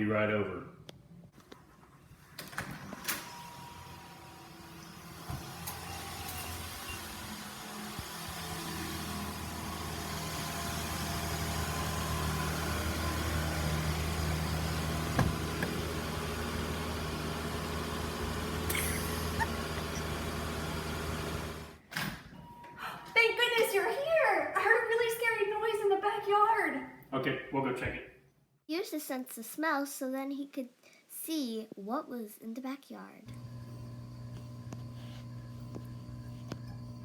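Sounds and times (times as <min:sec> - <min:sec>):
car engine running: 0:08.3 - 0:21.8, 0:33.3 - 0:37.0.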